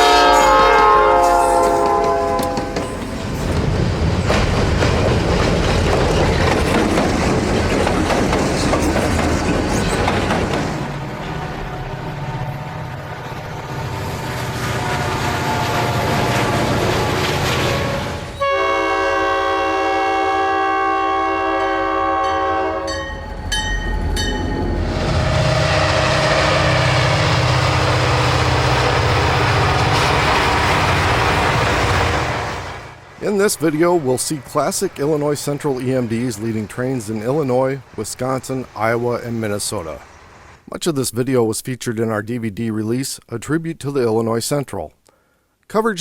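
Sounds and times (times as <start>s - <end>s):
locomotive air horn blast: 0.0s - 3.0s, 14.8s - 23.1s, 24.8s - 29.8s
locomotive engine rumble: 0.0s - 40.7s
train rolling noise: 0.0s - 40.8s.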